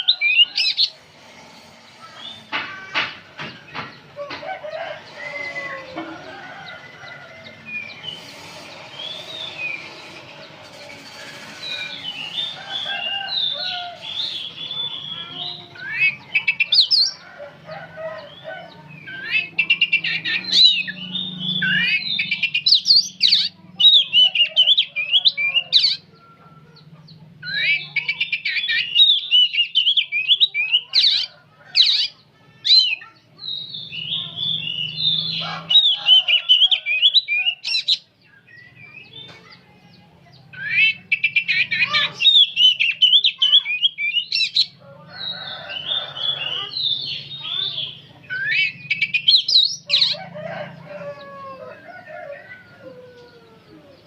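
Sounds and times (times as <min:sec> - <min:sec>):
bird singing whistled phrases: 0:46.8 - 0:49.7.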